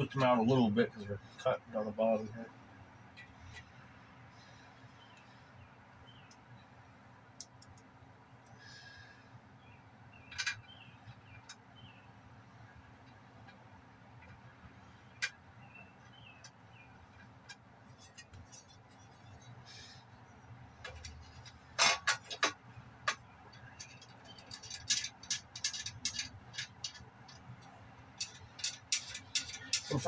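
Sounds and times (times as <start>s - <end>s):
metal tools clinking: 23.1s - 27.6s, 28.2s - 30.0s.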